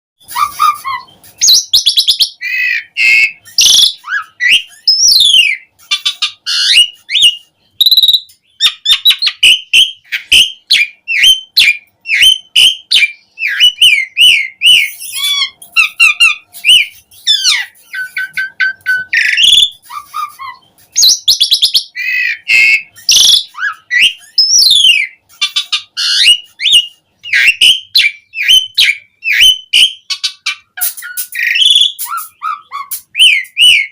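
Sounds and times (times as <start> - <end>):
starling singing: 0.2 - 33.9.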